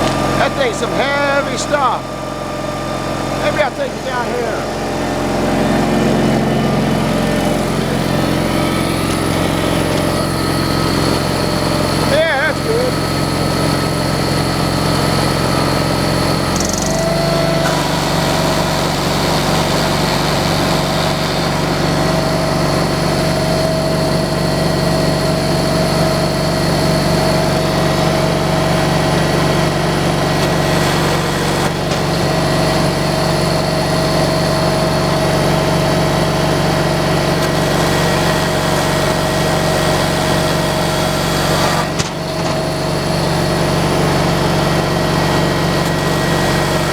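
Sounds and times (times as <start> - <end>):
sawmill engine running: 0.0 - 46.9
steady whine: 0.0 - 46.9.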